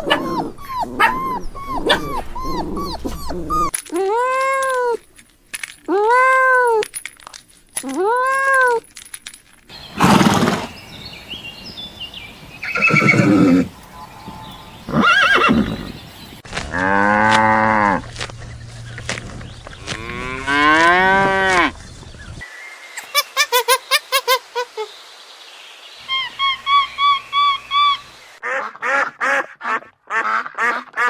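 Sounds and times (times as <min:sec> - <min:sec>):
farm animal cries: 0:00.0 - 0:03.7, 0:09.8 - 0:18.0.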